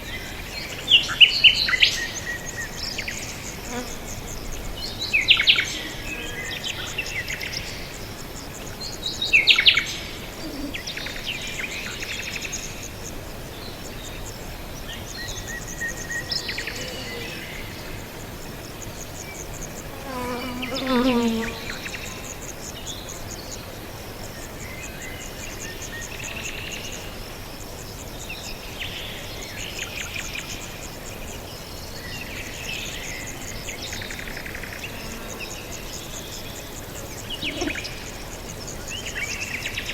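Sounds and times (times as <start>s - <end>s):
high insect buzz: 0.1s - 23.3s, 32.8s - 39.9s.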